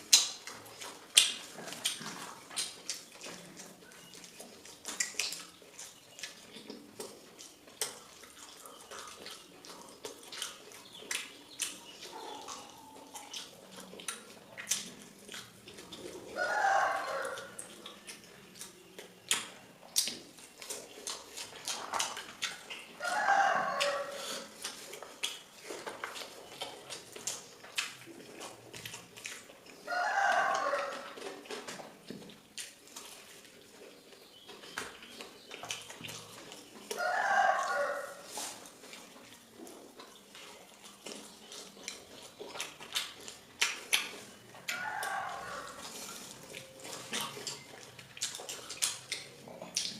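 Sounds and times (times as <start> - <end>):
close-up eating clicks: 0.0 - 49.9
rooster crowing: 16.4 - 17.5, 23.0 - 24.2, 29.9 - 31.1, 37.0 - 38.3, 44.7 - 45.8.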